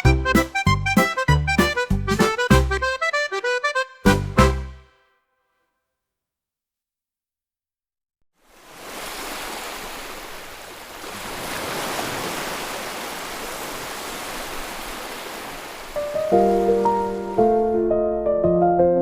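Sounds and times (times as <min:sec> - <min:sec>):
background music: 0:00.0 - 0:05.1, 0:16.0 - 0:19.0
sea waves rushing on shore: 0:08.4 - 0:17.7.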